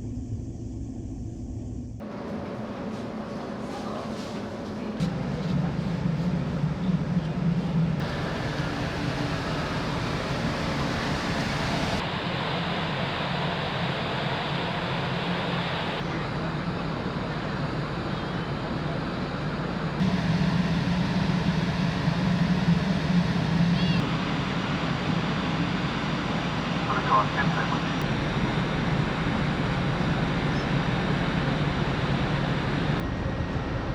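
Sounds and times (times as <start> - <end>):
ferry engines humming: 0.0 - 33.9.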